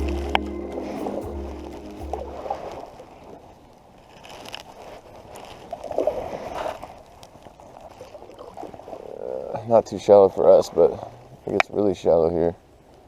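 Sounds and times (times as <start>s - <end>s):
background music: 0.0s - 2.8s
paddle strokes in water: 0.1s - 9.5s
water gurgling and sloshing: 0.1s - 9.6s.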